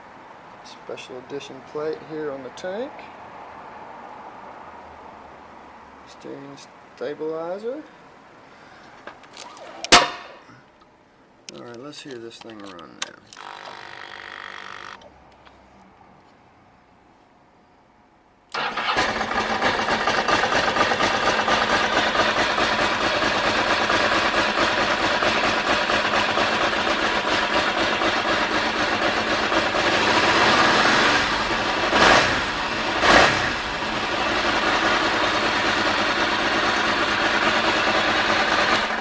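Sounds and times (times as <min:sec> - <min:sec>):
engine revving: 0:18.5 - 0:24.8, 0:27.6 - 0:39.0
motorcycle engine idling: 0:18.6 - 0:30.6, 0:31.3 - 0:39.0.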